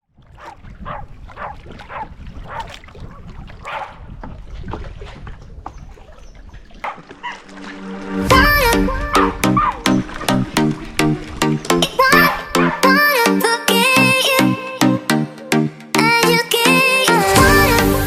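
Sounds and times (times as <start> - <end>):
background music: 7.6 - 18.0.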